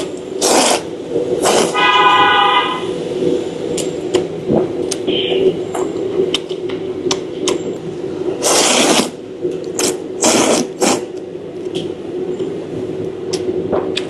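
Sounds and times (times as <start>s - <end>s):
steady background hum: 0.0s - 14.0s
noodles slurped loudly: 0.4s - 1.8s, 8.4s - 9.2s, 9.8s - 11.1s.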